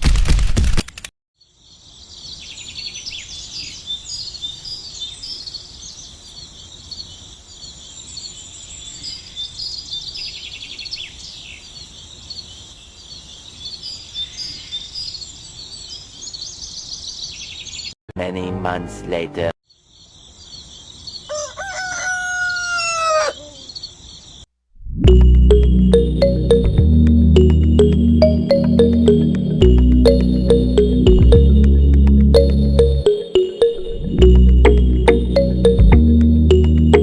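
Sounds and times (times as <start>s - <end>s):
birds chirping in chorus: 1.4s - 18.0s, 19.7s - 21.4s.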